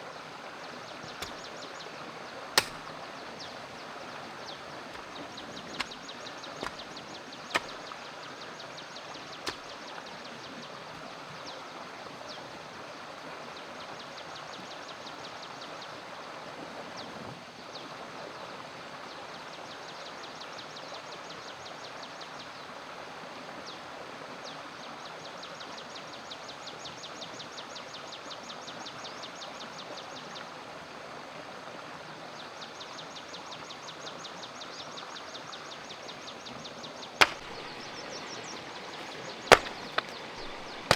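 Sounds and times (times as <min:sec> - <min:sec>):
sharp knocks: 0:02.6 - 0:02.9, 0:07.6 - 0:07.8, 0:09.5 - 0:09.7, 0:37.2 - 0:37.8, 0:39.0 - 0:40.9.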